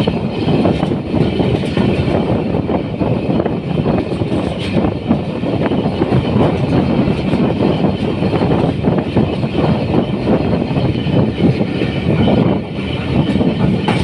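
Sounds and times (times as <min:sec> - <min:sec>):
train rumbling and rattling: 0:00.0 - 0:14.0.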